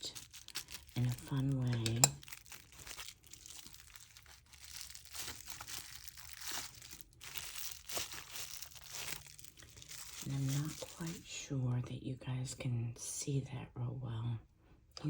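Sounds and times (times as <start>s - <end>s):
bubble wrap and paper crinkling: 0.0s - 11.6s.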